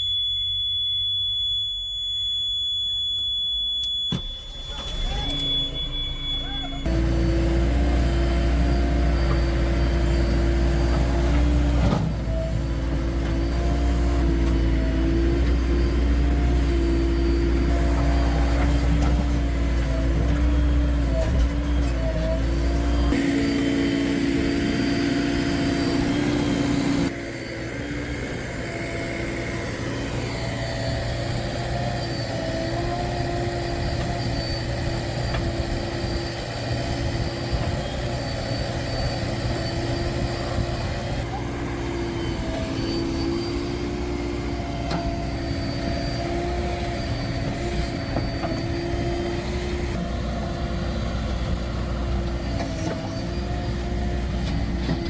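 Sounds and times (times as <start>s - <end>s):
diesel engine running: 3.0s - 55.0s.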